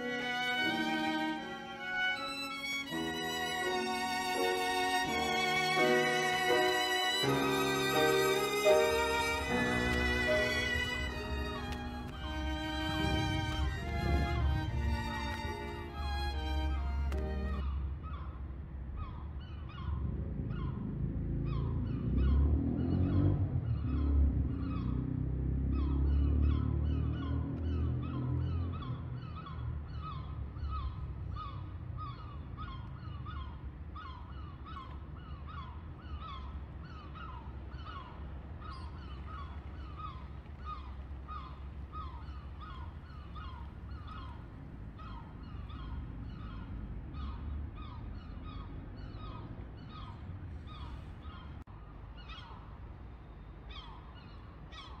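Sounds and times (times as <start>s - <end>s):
bird harsh downward calls: 0.0s - 18.2s
steady low rumble: 8.4s - 18.1s.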